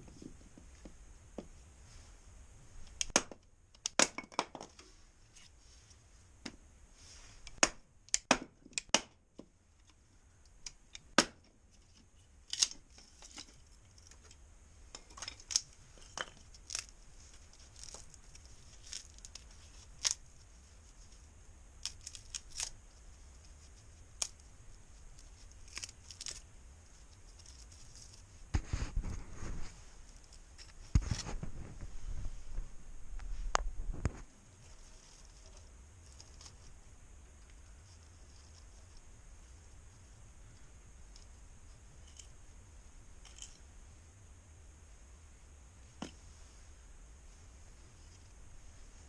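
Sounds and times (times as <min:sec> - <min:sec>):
wood fire crackling: 0:00.0 - 0:43.5.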